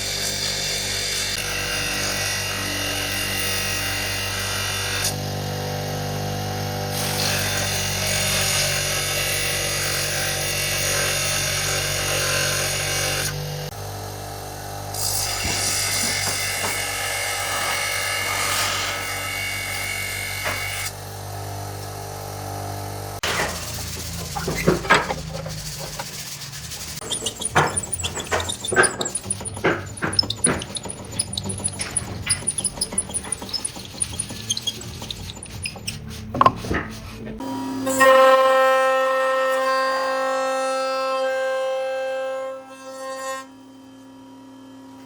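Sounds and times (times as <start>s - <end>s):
power tools on wood: 0.0s - 13.8s, 14.6s - 22.1s, 22.8s - 38.1s
motor hum: 23.3s - 36.9s
rasping of sanded wood: 23.6s - 37.2s.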